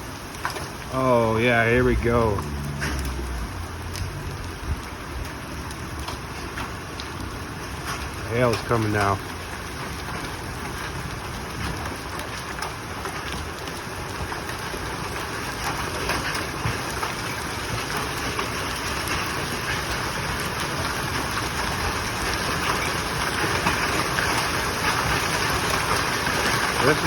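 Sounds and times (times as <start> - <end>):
heavy rain: 0.0 - 27.0
hail tapping: 0.1 - 27.0.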